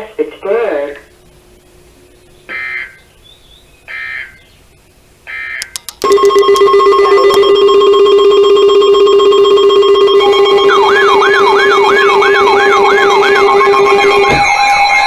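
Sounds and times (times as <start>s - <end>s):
clicks: 5.6s - 7.5s
steady electronic alert tone: 5.6s - 14.6s.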